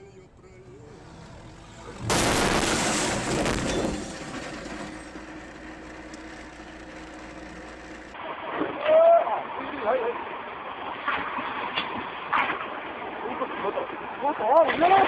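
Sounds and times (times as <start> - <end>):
vehicle crash: 0.6 - 8.2.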